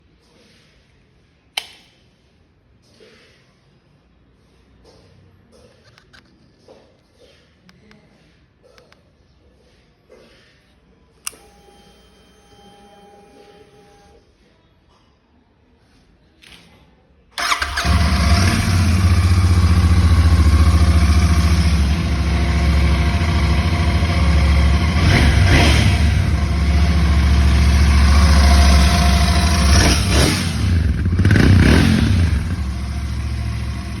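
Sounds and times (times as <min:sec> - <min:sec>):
motorcycle engine starting and idling: 0:17.4 - 0:34.0.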